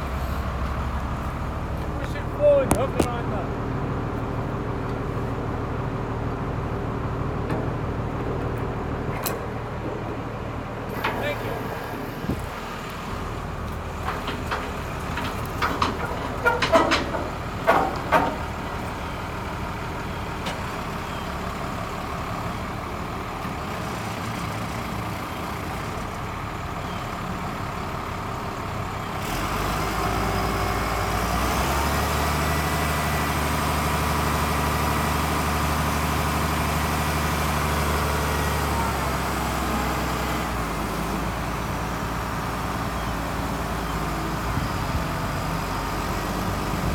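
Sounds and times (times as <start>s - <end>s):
diesel engine running: 0.0s - 46.9s
sharp metallic knocks: 14.1s - 18.6s.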